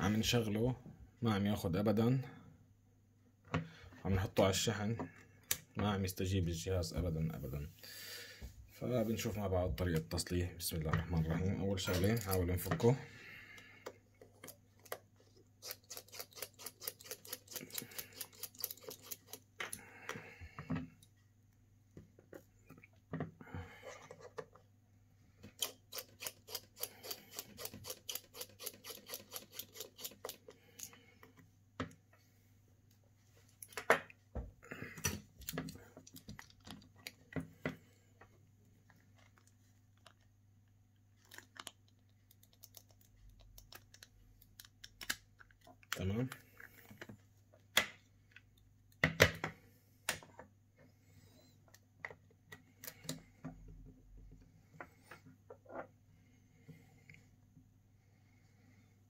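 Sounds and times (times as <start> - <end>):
small tools clicking and scraping: 11.9 - 12.6, 14.2 - 19.8, 25.4 - 31.4.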